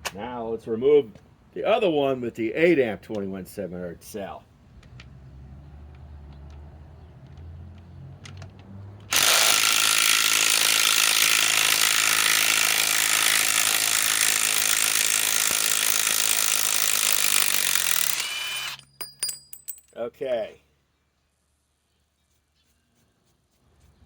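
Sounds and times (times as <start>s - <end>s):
impact wrench hammering: 9.1s - 19.9s.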